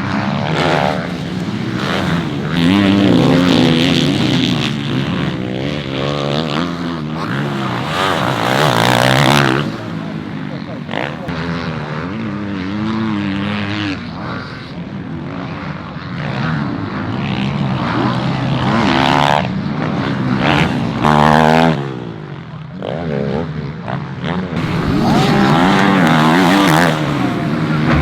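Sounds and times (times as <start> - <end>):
motocross bike engines revving: 0.0 - 28.0.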